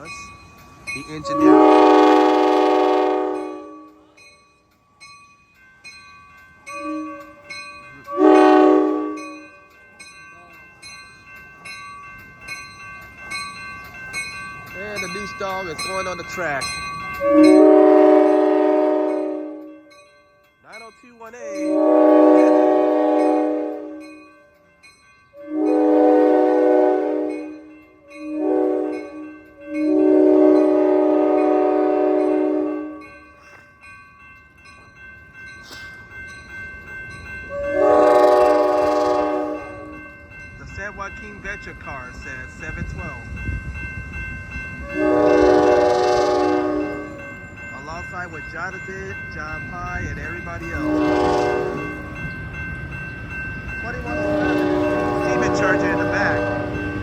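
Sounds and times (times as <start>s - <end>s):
bell ringing in regular strokes: 0.0s - 57.0s
locomotive air horn chord: 1.3s - 4.0s, 6.7s - 7.4s, 8.1s - 9.5s, 17.2s - 19.7s, 21.7s - 24.0s, 25.4s - 33.2s, 37.5s - 40.0s, 44.8s - 47.2s, 50.8s - 52.1s, 53.9s - 57.0s.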